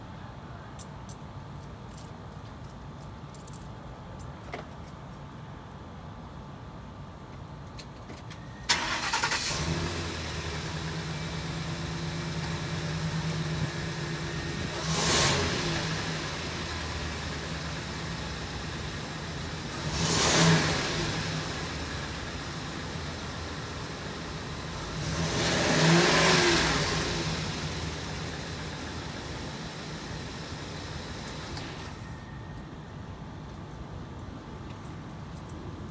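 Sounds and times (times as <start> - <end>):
van engine cranking and idling: 8.6 - 32.4
engine revving: 8.7 - 32.0.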